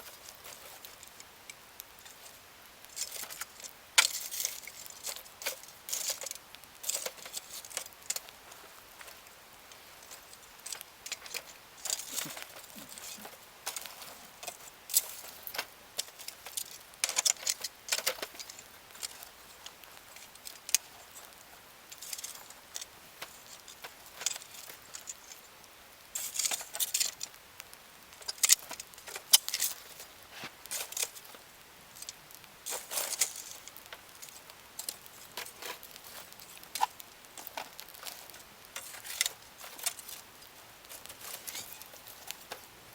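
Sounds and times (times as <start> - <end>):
campfire crackling and popping: 0.0 - 42.9.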